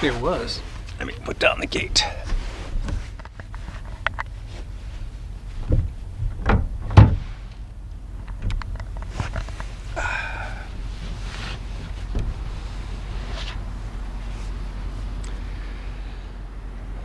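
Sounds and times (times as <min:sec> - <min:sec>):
tailgate thudding: 0:00.0 - 0:14.2
steady low rumble: 0:00.0 - 0:17.0
tailgate creak: 0:01.7 - 0:14.2.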